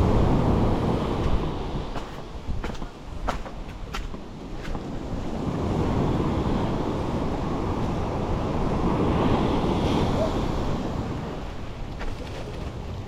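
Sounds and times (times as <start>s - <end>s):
wind buffeting microphone: 0.0s - 13.0s
waves rushing up the shore: 4.9s - 11.9s.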